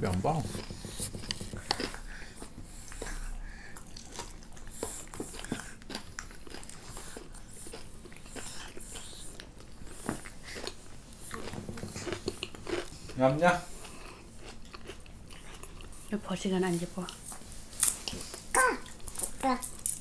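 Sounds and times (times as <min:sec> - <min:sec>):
person chewing and crunching food: 0:00.0 - 0:16.2, 0:17.0 - 0:20.0.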